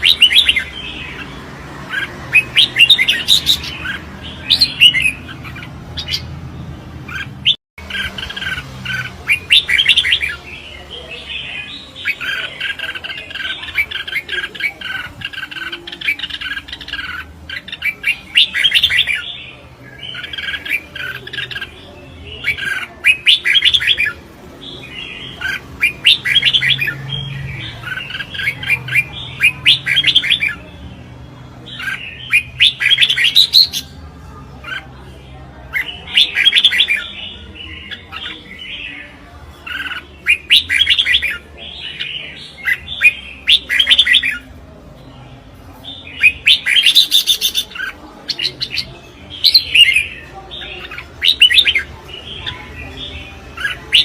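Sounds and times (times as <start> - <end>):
birds singing warbling phrases: 0.0 - 54.0.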